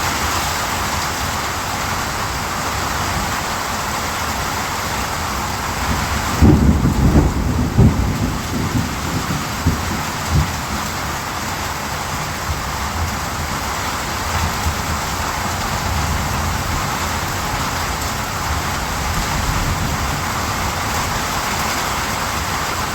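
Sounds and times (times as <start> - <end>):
heavy rain falling: 0.0 - 22.9
thunder rumble: 5.2 - 22.5.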